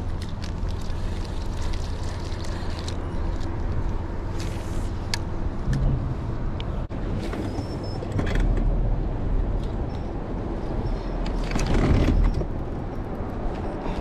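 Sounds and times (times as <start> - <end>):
wind buffeting microphone: 5.4 - 7.2.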